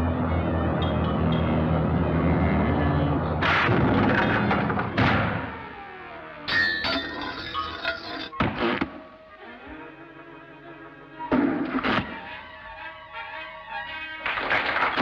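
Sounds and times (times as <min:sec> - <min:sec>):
cartoon orchestral music: 0:06.3 - 0:15.0.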